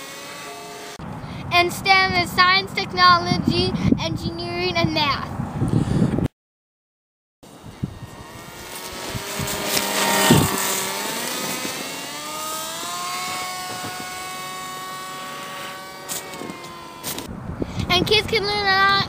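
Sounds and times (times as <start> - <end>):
model plane motor whining: 0.0 - 1.2, 7.5 - 17.3.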